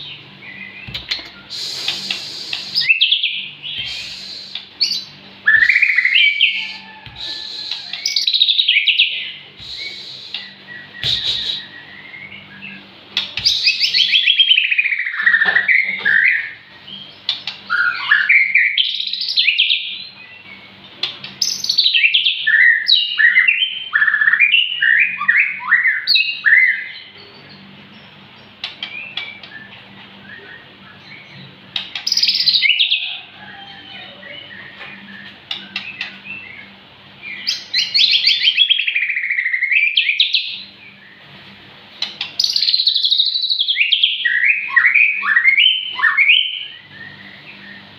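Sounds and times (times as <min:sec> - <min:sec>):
bird singing whistled phrases: 0:00.5 - 0:12.8, 0:13.4 - 0:17.0, 0:17.7 - 0:20.7, 0:37.3 - 0:41.2, 0:42.4 - 0:47.9.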